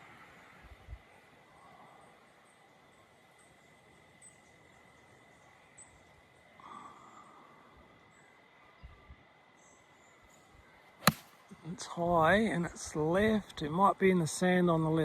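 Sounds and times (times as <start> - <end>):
faint bird chirps: 0.0 - 11.8
faint high insect tone: 0.0 - 15.0.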